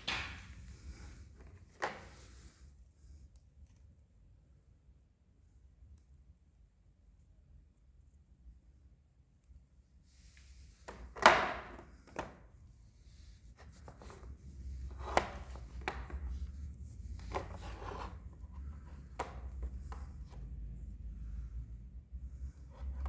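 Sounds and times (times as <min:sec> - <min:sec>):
rubbing or rustling: 0:10.2 - 0:20.6.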